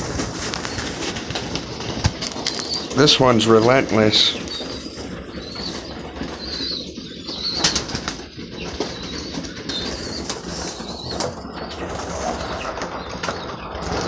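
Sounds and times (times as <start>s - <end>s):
pigeons flapping wings: 0.0s - 14.0s
sharp wing claps: 4.4s - 14.0s.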